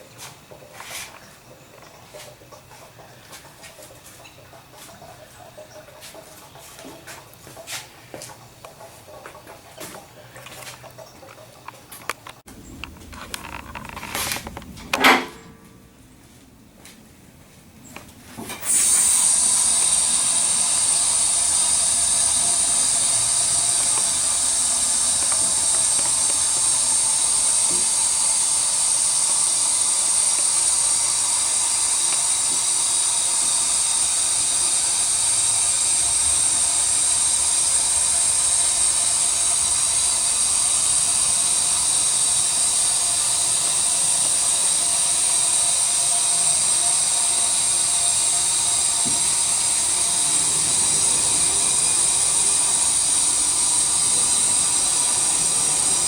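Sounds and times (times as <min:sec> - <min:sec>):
loud hiss with high whine: 0:18.5 - 0:56.0.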